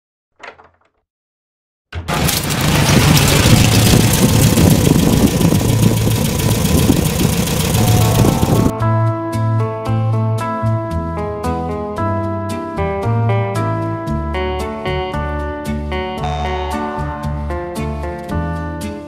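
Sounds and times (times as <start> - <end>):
car engine idling: 2.1 - 8.7.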